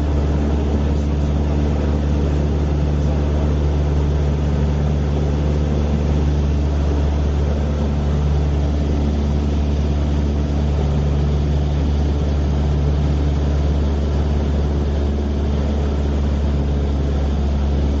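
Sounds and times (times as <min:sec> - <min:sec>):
aircraft engine drone: 0:00.0 - 0:18.0.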